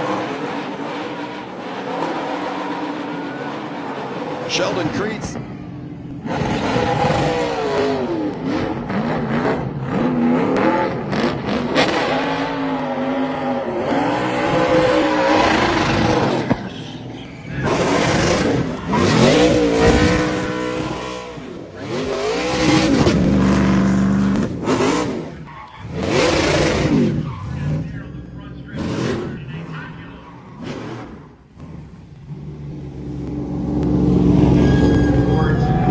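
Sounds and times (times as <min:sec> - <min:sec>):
race truck engine revving hard: 0:00.0 - 0:35.9
tires squealing: 0:00.0 - 0:35.9.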